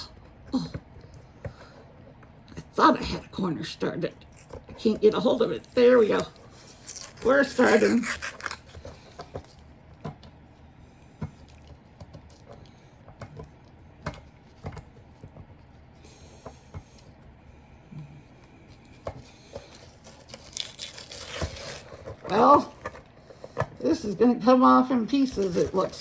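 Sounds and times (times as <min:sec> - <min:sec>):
paper tearing: 0:05.2 - 0:08.9, 0:19.8 - 0:22.8.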